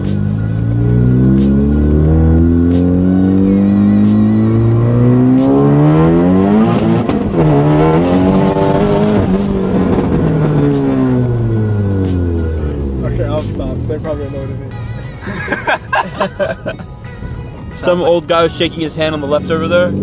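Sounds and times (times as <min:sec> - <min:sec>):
car engine revving hard: 0:00.0 - 0:14.6, 0:15.2 - 0:20.0.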